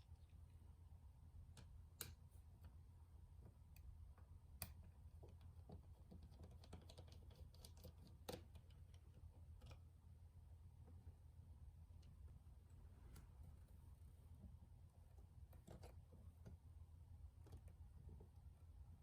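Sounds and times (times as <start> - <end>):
steady low hum: 0.0 - 19.0
small tools and plastic clicking: 4.6 - 9.9.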